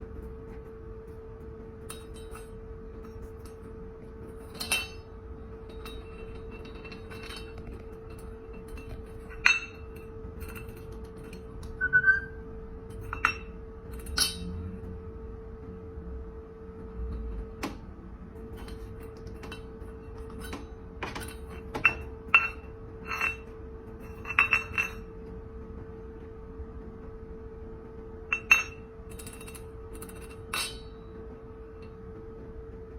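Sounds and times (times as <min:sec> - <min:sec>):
steady hum: 0:00.0 - 0:32.9.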